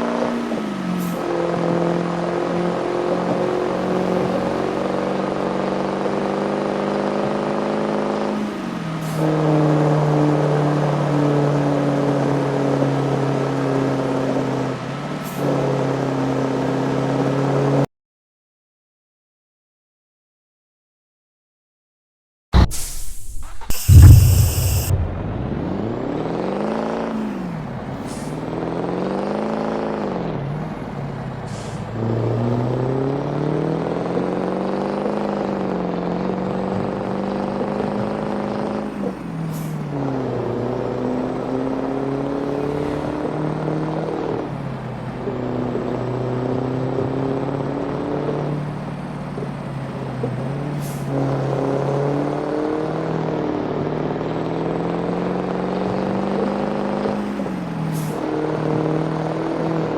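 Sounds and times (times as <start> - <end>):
truck engine revving: 0.0 - 17.8, 22.6 - 59.9
air hisses: 22.6 - 25.0.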